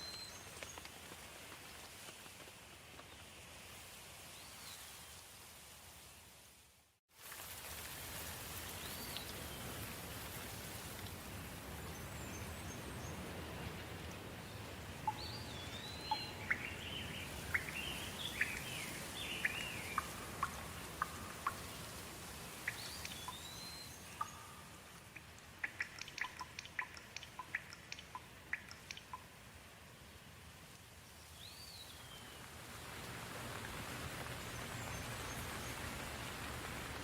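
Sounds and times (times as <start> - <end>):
gentle rain hiss: 0.0 - 37.0
bird chirping: 15.0 - 21.8, 22.6 - 29.3
water drops dripping: 15.0 - 29.4.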